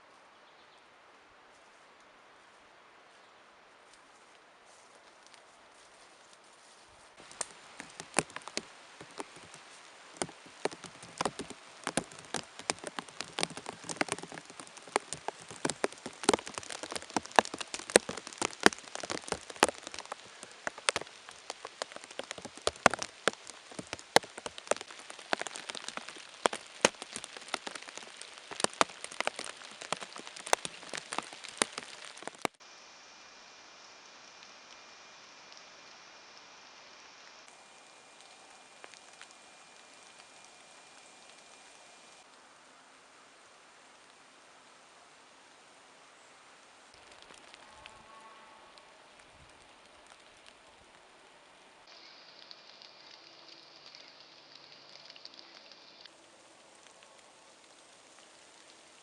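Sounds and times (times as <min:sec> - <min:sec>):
steady rain: 0:00.0 - 0:59.0
sharp water drips: 0:07.2 - 0:32.6, 0:34.1 - 0:42.4, 0:46.9 - 0:48.0, 0:49.2 - 0:59.0.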